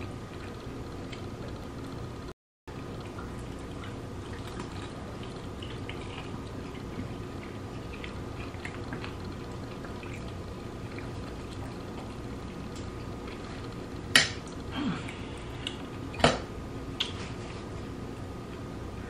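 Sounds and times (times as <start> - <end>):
steady low hum: 0.0 - 19.0
chewing and lip-smacking: 2.8 - 16.2.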